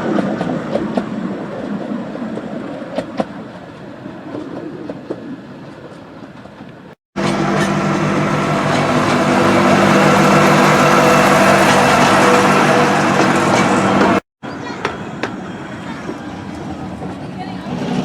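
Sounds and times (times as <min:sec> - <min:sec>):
engine running steadily: 0:07.2 - 0:14.2.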